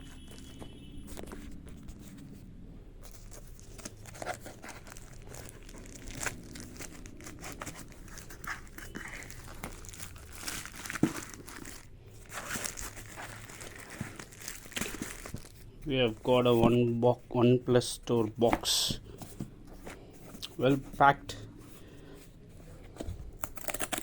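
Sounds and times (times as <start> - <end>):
packaging crinkling and tearing: 3.0 - 16.3, 23.0 - 24.0.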